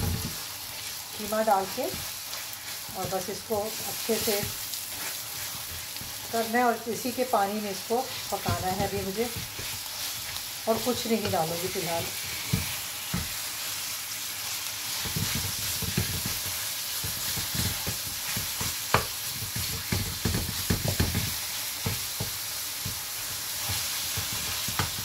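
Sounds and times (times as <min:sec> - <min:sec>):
minced beef sizzling in pan: 0:00.0 - 0:25.0
wooden spatula scraping pan: 0:00.1 - 0:13.4
spatula knocking on pan: 0:08.4 - 0:09.8, 0:11.1 - 0:11.6, 0:12.5 - 0:13.4, 0:15.0 - 0:23.0.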